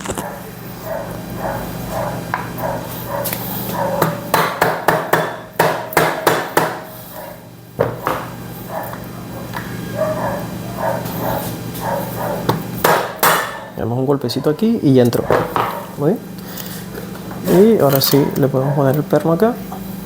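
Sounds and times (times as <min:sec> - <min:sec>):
hammer tapping metal: 0:04.0 - 0:06.9, 0:12.5 - 0:13.7.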